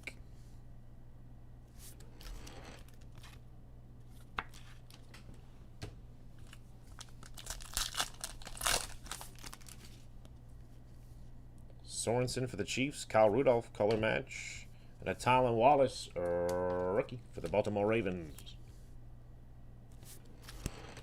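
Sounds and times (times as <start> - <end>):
plastic wrapper crinkling: 6.4 - 10.1.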